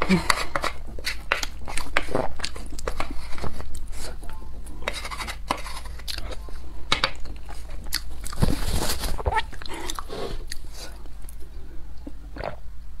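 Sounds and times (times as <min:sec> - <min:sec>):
close chewing and mouth sounds: 0:00.0 - 0:12.6
low steady hum: 0:00.0 - 0:13.0.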